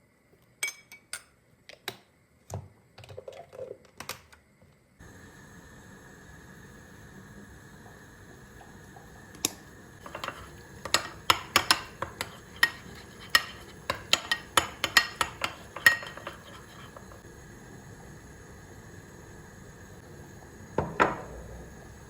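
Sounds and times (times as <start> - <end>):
kitchen items clinking: 10.0 - 17.2.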